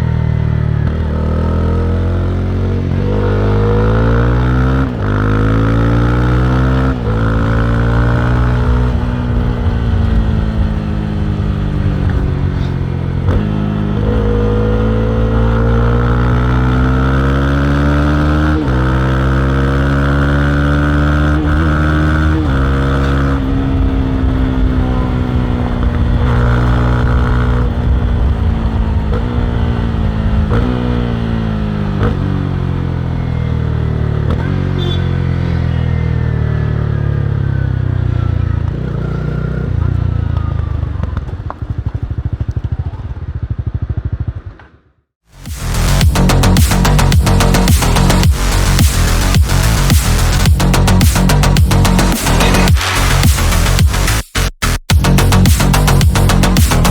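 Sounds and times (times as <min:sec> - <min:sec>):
motorcycle engine running: 0:00.0 - 0:44.6, 0:45.4 - 0:56.9.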